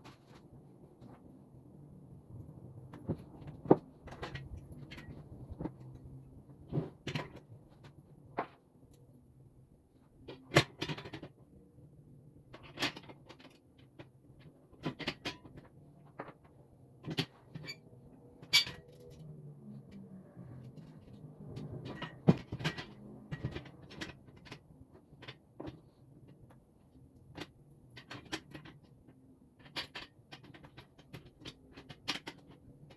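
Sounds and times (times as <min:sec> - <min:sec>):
parts knocking and clicking: 0:12.5 - 0:32.9.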